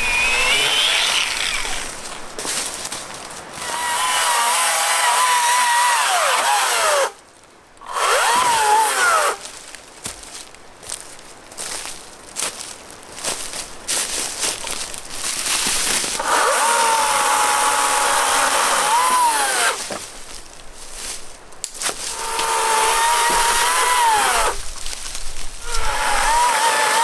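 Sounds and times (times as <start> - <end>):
power saw cutting wood: 0.0 - 2.1, 3.6 - 7.2, 7.8 - 9.5, 16.1 - 20.0, 21.8 - 24.7, 25.6 - 27.0.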